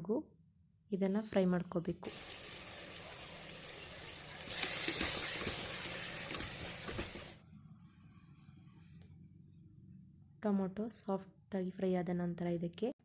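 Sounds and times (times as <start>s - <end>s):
vegetables sizzling in hot oil: 2.0s - 7.4s.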